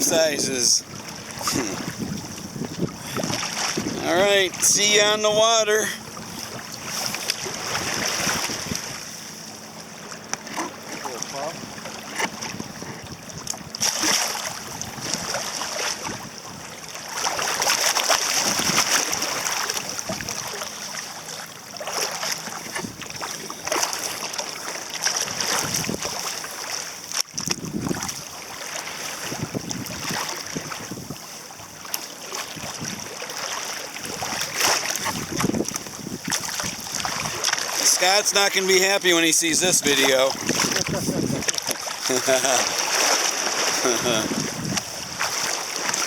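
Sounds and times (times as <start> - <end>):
wind buffeting microphone: 0.0 - 4.7, 6.0 - 9.0, 18.4 - 20.6, 25.3 - 26.2, 27.3 - 28.2, 29.2 - 31.2, 34.0 - 37.5, 39.6 - 41.6, 43.9 - 46.0
water rushing along kayak hull: 0.0 - 46.0.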